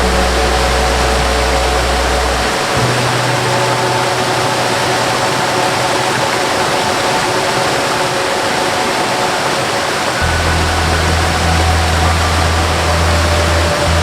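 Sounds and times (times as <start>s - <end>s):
deep bass note: 0.0s - 5.7s, 10.2s - 14.0s
soft melody of held notes: 0.0s - 14.0s
waterfall rushing: 0.0s - 14.0s.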